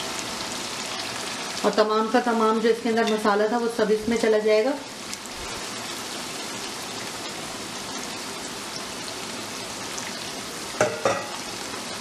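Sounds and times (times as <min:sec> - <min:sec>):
oil sizzling in a wok: 0:00.0 - 0:12.0.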